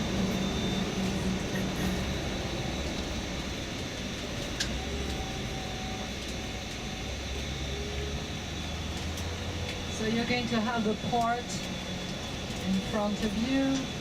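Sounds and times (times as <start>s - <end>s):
coach engine hum and road noise: 0.0s - 14.0s.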